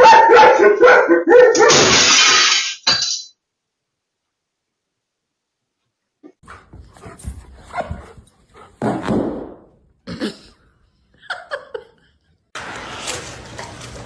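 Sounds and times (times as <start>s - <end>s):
dog barking: 0.0s - 1.8s.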